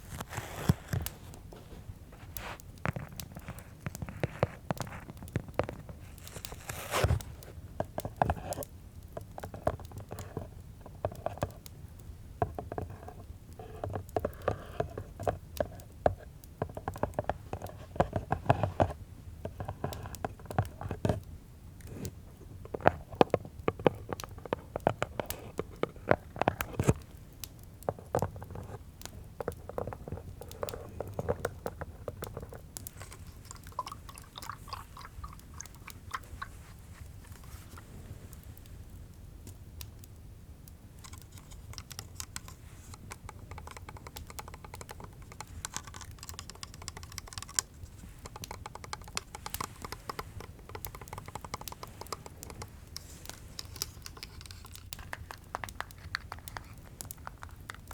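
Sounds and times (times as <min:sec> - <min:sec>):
fingers tapping on hard objects: 0:41.0 - 0:57.9.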